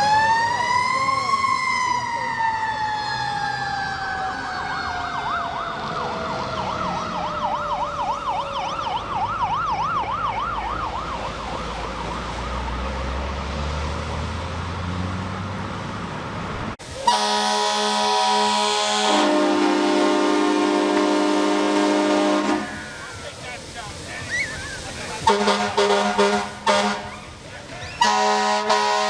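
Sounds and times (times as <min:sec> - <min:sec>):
mechanical siren wailing: 0:00.0 - 0:12.8
fire truck air horn blast: 0:16.8 - 0:24.1, 0:24.8 - 0:29.0.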